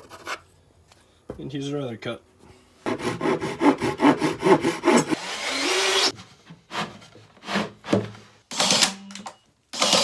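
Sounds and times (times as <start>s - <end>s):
saw cutting plywood: 2.9s - 7.8s.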